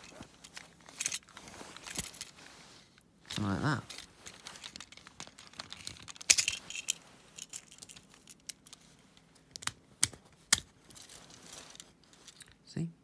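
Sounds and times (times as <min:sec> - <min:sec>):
plastic toy parts clicking: 0:03.3 - 0:12.6.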